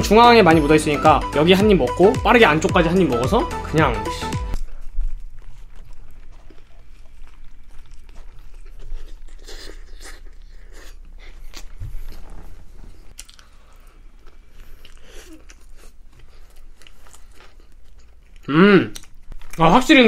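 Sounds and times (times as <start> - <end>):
person biting and chewing burger: 4.5 - 19.6.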